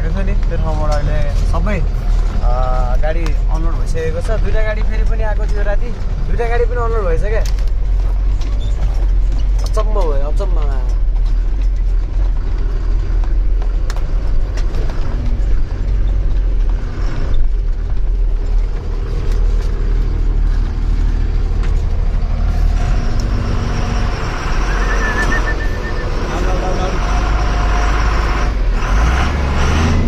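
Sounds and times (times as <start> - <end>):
truck engine rumbling: 0.0 - 30.0
knocks and rattles: 0.1 - 23.2
steady pitched tone: 22.8 - 28.3.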